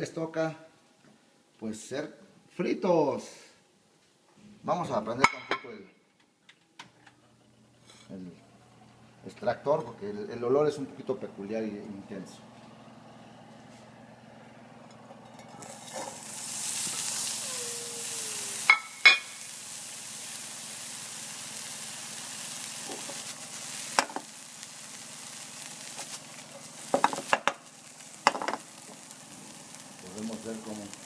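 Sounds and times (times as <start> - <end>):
worms sizzling in hot oil: 15.4 - 31.0.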